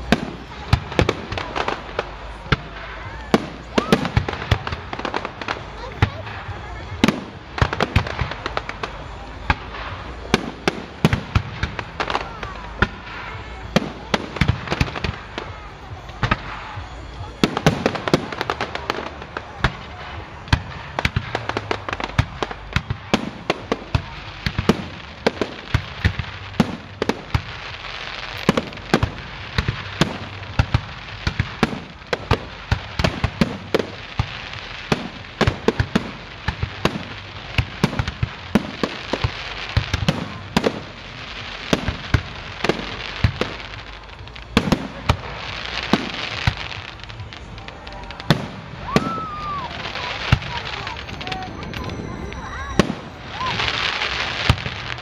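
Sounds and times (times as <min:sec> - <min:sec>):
crackling hiss of fireworks: 0:00.0 - 0:55.0.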